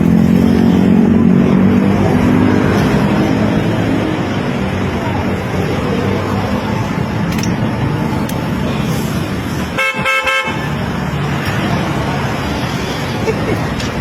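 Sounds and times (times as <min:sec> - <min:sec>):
road traffic rumble: 0:00.0 - 0:14.0
car horn toots: 0:09.8 - 0:10.6.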